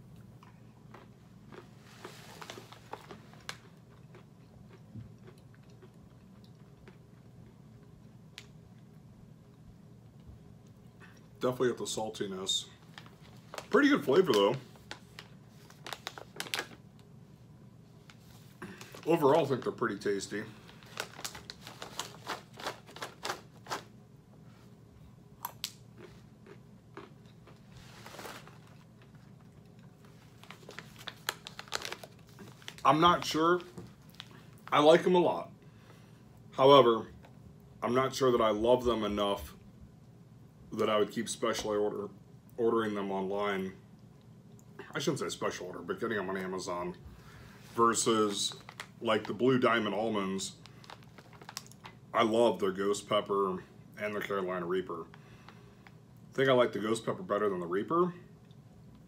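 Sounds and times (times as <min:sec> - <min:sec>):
chewing peanuts: 0:00.1 - 0:08.1, 0:25.4 - 0:33.0
plastic bag crinkling: 0:01.0 - 0:04.2, 0:12.6 - 0:17.1, 0:18.0 - 0:24.0, 0:27.0 - 0:35.1, 0:47.5 - 0:52.0.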